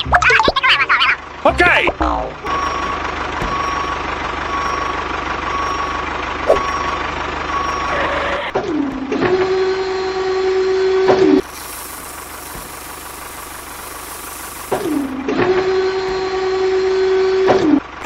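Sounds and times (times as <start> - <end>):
engine rumble: 0.0 - 18.0
vehicle reversing beeps: 2.0 - 17.6
even hiss: 11.4 - 15.0.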